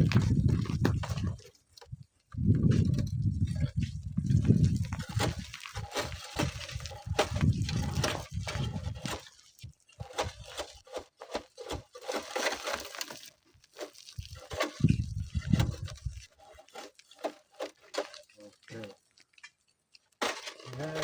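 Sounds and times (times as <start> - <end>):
wind buffeting microphone: 0.0 - 9.2, 14.2 - 16.2.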